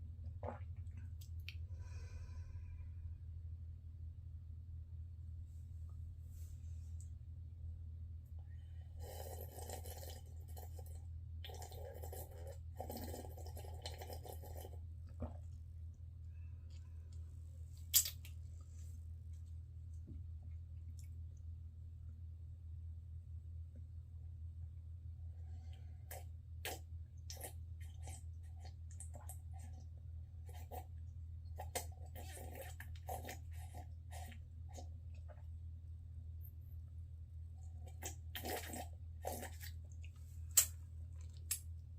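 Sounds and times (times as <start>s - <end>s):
steady low hum: 0.0s - 41.9s
crackly slurps of coffee: 9.0s - 15.4s, 31.6s - 34.9s, 37.9s - 39.8s.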